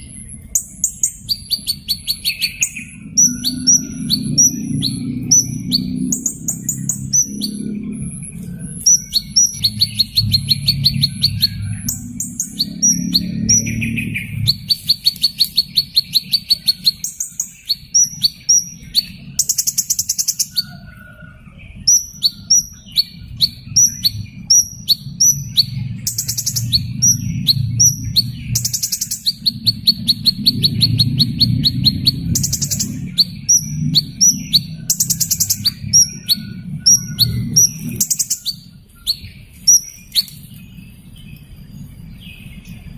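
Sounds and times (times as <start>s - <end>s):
buzzy bird trills: 0.0s - 41.0s
small bird chirping: 0.0s - 42.9s.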